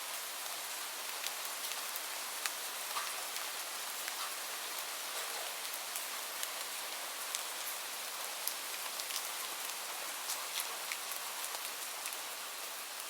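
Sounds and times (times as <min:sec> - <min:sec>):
steady rain hiss: 0:00.0 - 0:13.0
raindrops ticking on a surface: 0:00.1 - 0:13.0.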